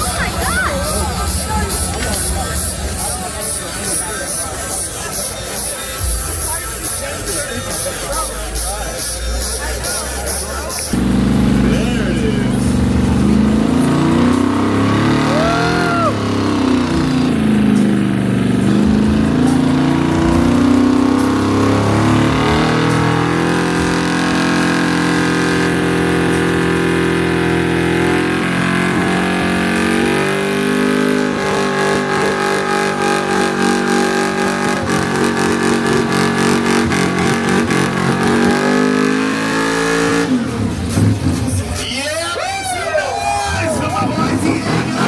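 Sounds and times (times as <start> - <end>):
car engine revving high: 10.9 - 41.3, 43.9 - 45.0.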